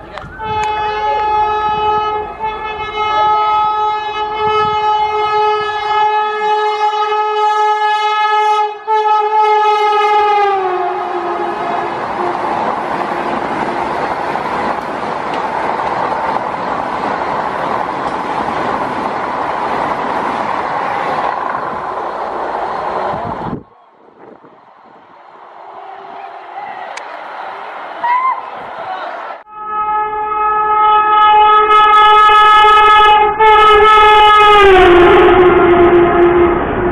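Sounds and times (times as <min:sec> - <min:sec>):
train passing with wheel rumble: 0:00.0 - 0:36.9
train horn blast: 0:00.2 - 0:14.0, 0:29.4 - 0:36.9.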